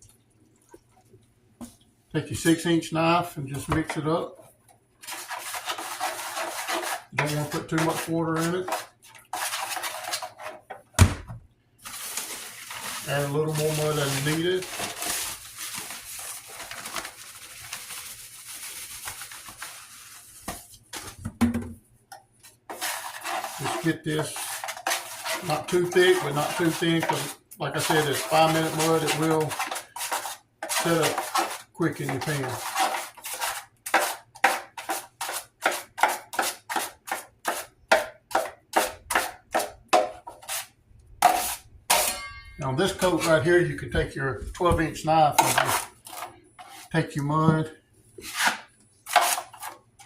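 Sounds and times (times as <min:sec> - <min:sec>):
knife scraping wet compound: 0:05.0 - 0:10.8, 0:11.9 - 0:17.1, 0:22.4 - 0:44.0, 0:44.6 - 0:50.0.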